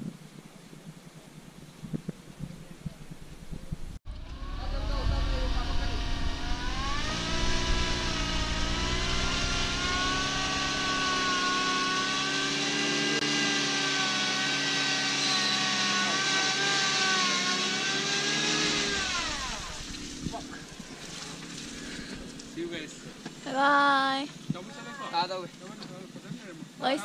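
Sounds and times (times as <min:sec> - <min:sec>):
car engine revving: 0:04.1 - 0:23.6.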